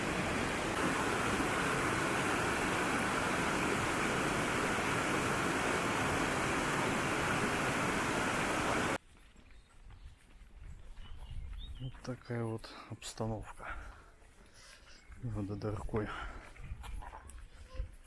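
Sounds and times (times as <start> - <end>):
waterfall rushing: 0.0 - 9.0.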